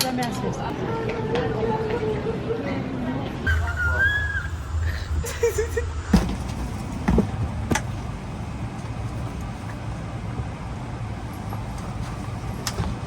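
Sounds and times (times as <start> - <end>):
vehicle interior rumble and hiss: 4.9 - 13.0.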